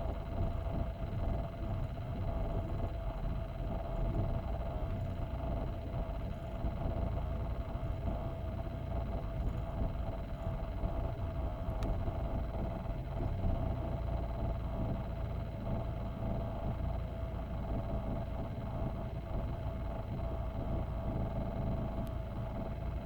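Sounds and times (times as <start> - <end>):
car engine running: 0.0 - 23.0.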